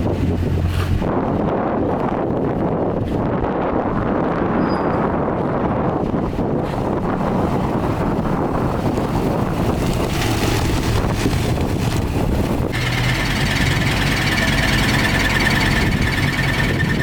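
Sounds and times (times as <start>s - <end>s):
heavy machinery engine rumble: 0.0s - 17.0s
high pulsing whine: 12.6s - 17.0s.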